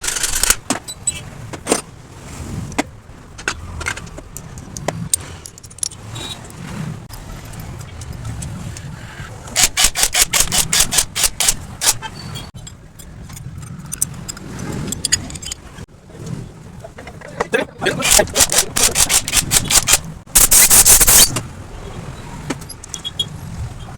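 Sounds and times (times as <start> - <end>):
metallic clicks: 0.0 - 1.2, 3.4 - 8.9, 9.6 - 15.8, 18.1 - 21.4, 22.6 - 23.2
metal tools clanking: 9.6 - 15.9, 17.0 - 21.4.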